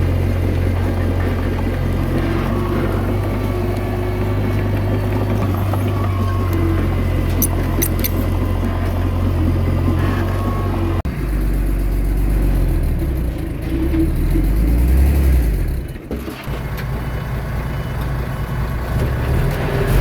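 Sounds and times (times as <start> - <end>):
heavy diesel engine running: 0.0 - 20.0
deep rumble: 19.8 - 20.0.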